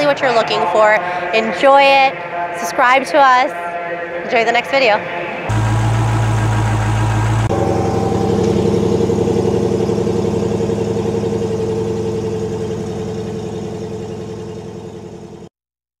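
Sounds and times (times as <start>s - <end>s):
car engine idling: 5.5s - 15.5s
held low tone: 5.5s - 15.5s.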